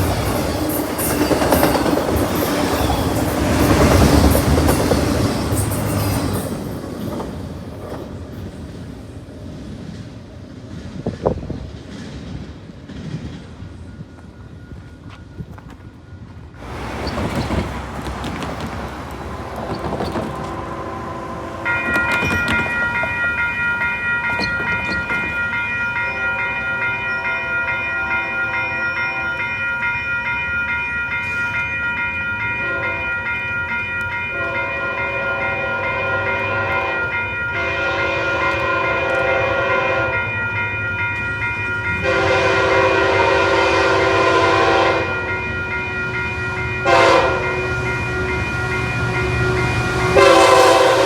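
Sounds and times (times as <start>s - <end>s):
train rumble: 0.0s - 51.0s
locomotive horn blasts: 19.6s - 22.4s, 26.1s - 29.5s, 32.6s - 33.2s, 34.3s - 40.4s, 41.9s - 51.0s
bell ringing: 21.6s - 42.9s, 44.7s - 50.6s.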